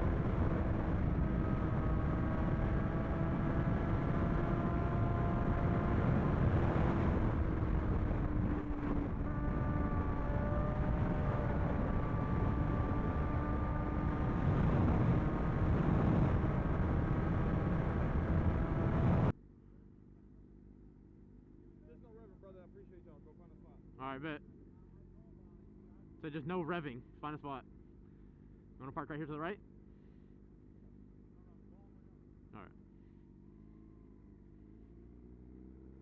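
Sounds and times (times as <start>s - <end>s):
motorcycle engine cruising: 0.0s - 19.4s, 29.6s - 36.0s
wind and road noise: 0.0s - 19.4s, 32.8s - 36.0s.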